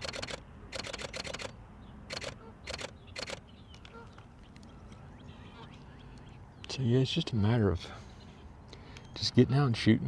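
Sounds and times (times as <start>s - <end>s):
camera shutter clicking in bursts: 0.0s - 3.5s.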